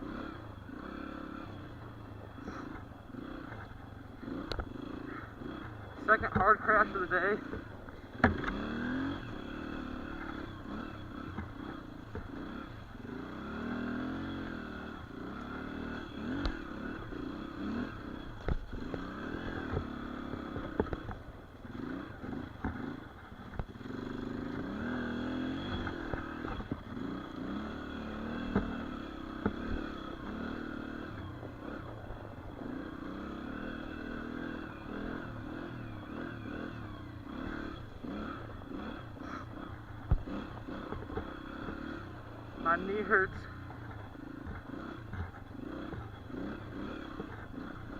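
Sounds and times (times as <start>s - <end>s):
dirt bike engine revving: 0.0s - 47.9s
clatter: 16.3s - 32.0s, 34.6s - 42.1s, 43.0s - 47.9s.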